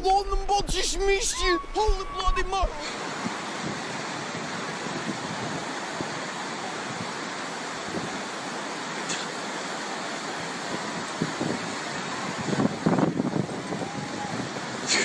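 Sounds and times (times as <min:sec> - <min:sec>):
storm rushing noise: 0:10.7 - 0:15.0.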